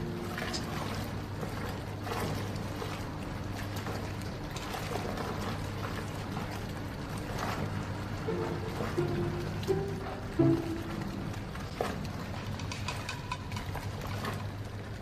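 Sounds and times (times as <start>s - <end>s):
washing machine running: 0.0s - 15.0s.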